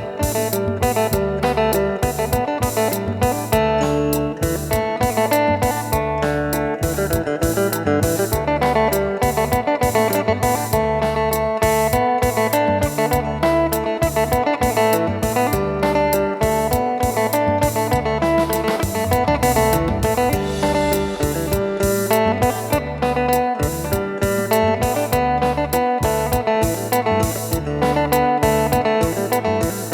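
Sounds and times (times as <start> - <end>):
plucked lute melody: 0.0 - 29.9
steady beat and bass: 0.0 - 29.9.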